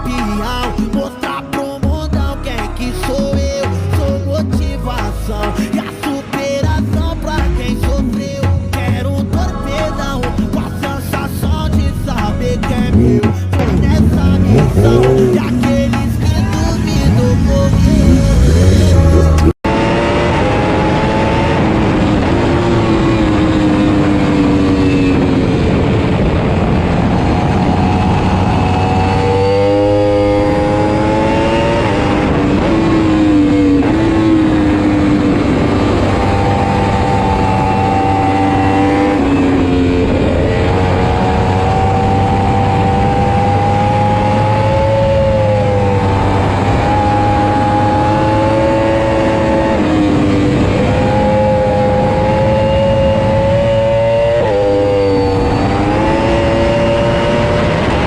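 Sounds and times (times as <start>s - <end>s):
motorcycle engine at high revs: 12.6s - 58.0s.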